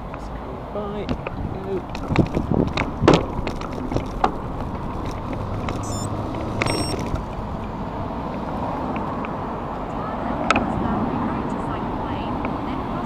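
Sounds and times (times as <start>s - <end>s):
traffic going past: 0.0s - 13.0s
brief high-pitched tones: 5.8s - 7.0s.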